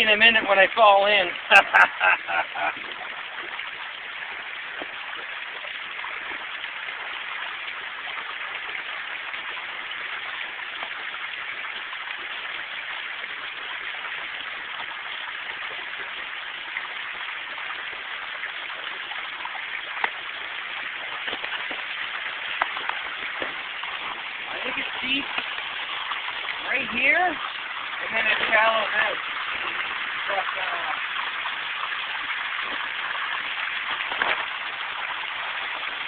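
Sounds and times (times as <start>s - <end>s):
waterfall rushing: 21.1s - 31.4s.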